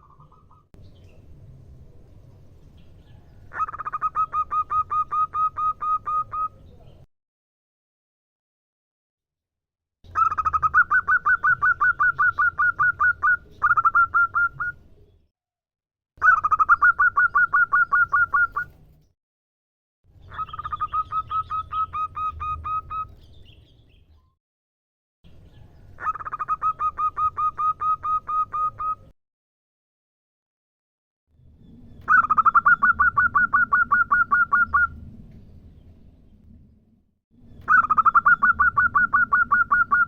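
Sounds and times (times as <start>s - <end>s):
dove calling with staccato notes: 3.4s - 6.6s, 10.1s - 14.8s, 16.2s - 18.8s, 20.2s - 23.2s, 25.9s - 29.1s, 32.0s - 35.0s, 37.6s - 40.0s.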